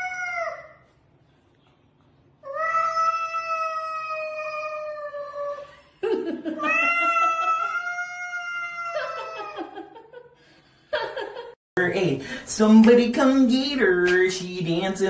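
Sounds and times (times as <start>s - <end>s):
cat yowling: 0.0s - 0.8s, 2.4s - 5.7s, 6.6s - 9.8s
cat growling: 6.6s - 9.6s.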